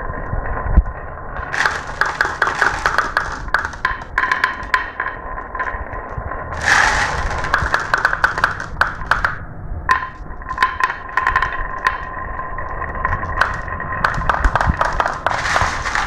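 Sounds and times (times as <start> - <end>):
marbles clattering down track: 0.0 - 16.0.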